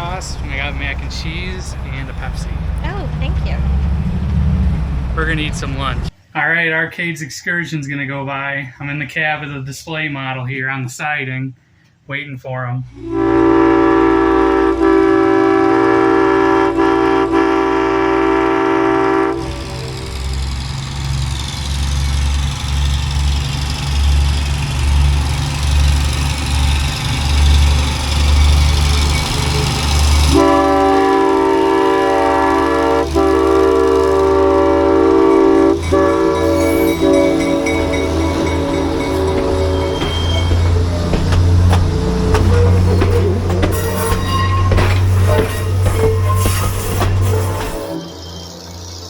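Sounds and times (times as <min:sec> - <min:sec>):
locomotive engine rumbling past: 0:00.0 - 0:06.2, 0:12.9 - 0:49.0
train horn multi-note chord: 0:12.9 - 0:20.8, 0:28.6 - 0:48.8.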